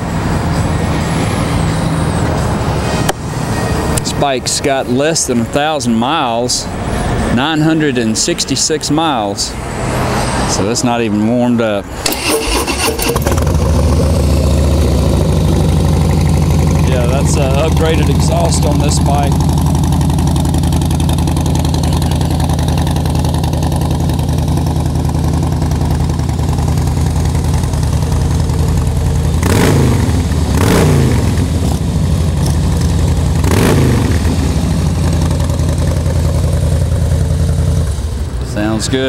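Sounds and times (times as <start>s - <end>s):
engine revving: 11.9s - 39.0s
motorcycle engine idling: 13.1s - 38.8s.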